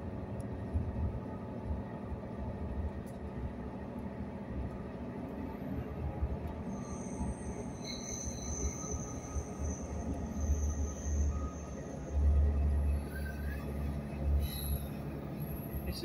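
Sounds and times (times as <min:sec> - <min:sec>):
train rumbling on track: 0:00.0 - 0:16.0
wheels squealing on rails: 0:05.5 - 0:16.0.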